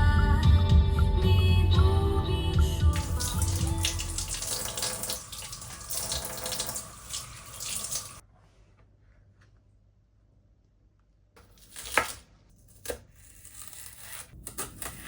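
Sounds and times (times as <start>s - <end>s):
tap water running into sink: 2.9s - 8.2s.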